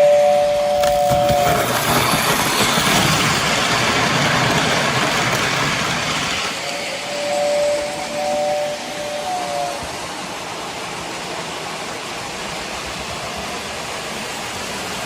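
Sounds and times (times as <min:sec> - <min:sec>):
two-note tone: 0:00.0 - 0:01.5, 0:06.6 - 0:09.9
model train wheels rumbling: 0:00.0 - 0:15.0.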